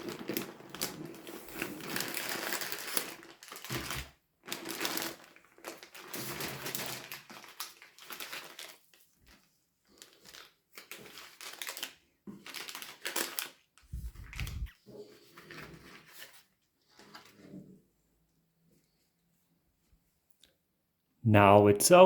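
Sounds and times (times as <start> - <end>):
packaging crinkling: 0.0 - 9.4, 10.0 - 14.7.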